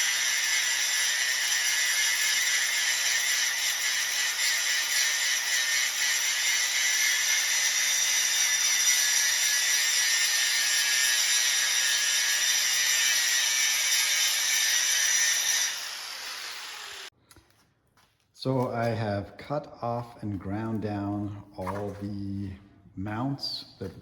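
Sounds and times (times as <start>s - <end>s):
power grinder on steel: 0.0s - 17.1s.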